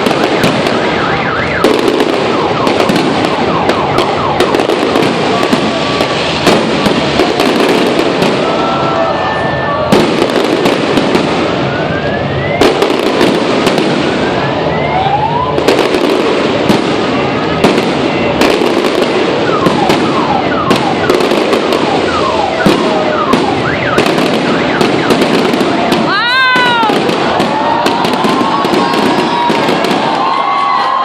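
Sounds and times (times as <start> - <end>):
fireworks crackling and banging: 0.0 - 31.0
whistling firework shells: 9.4 - 14.6, 17.6 - 30.2.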